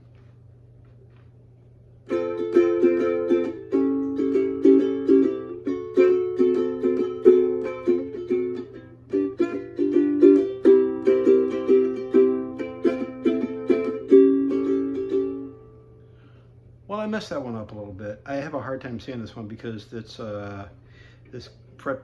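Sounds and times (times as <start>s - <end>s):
ukulele strumming chords: 2.1s - 16.0s.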